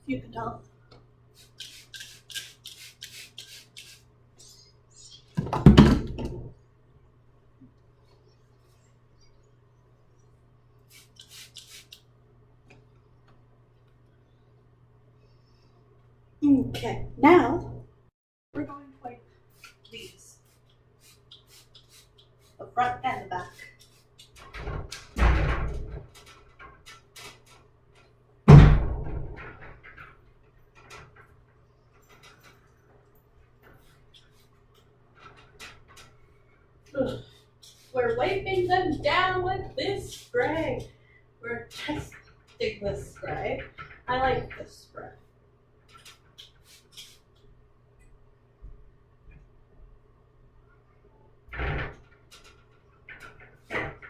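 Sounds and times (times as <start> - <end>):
spray bottle squirting: 1.4 - 4.7, 10.9 - 12.1, 20.5 - 22.3, 46.0 - 47.3
heavy thumps: 5.4 - 6.5.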